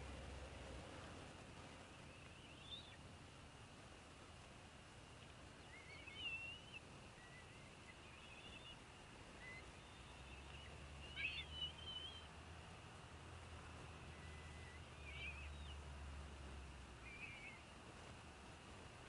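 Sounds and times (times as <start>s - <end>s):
outdoor background hiss: 0.0s - 19.0s
wavering bird calls: 1.9s - 3.0s, 5.6s - 12.4s, 14.0s - 15.9s, 17.0s - 17.7s.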